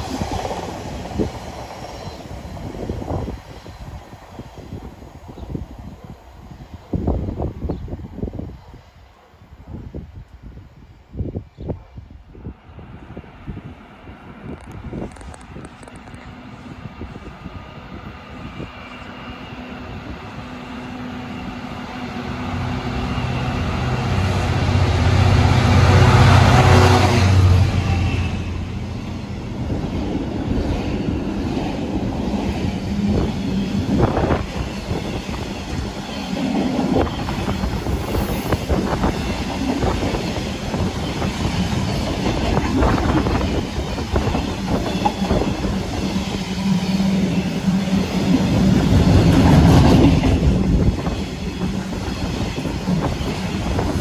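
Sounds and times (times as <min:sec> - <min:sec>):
train engine droning: 0:12.3 - 0:54.0.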